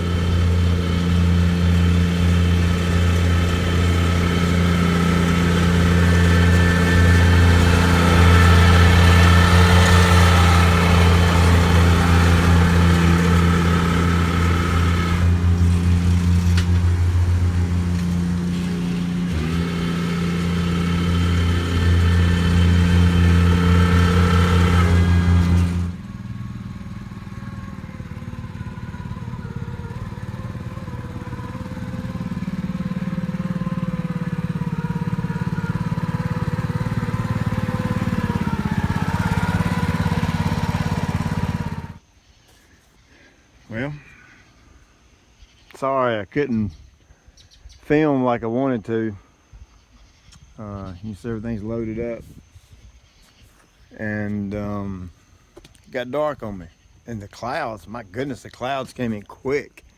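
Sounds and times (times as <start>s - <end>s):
lawn equipment engine running: 0.0s - 42.0s.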